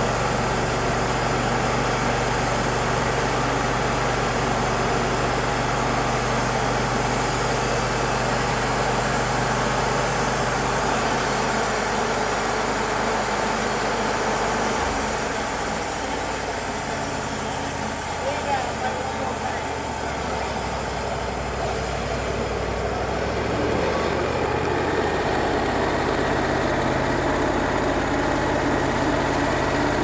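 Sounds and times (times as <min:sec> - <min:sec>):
sawmill engine running: 0:00.0 - 0:30.0.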